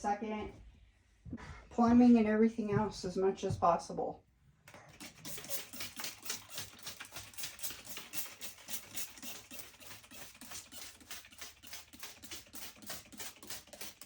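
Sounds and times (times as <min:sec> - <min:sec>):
spray bottle hissing sprays: 0:05.0 - 0:14.0.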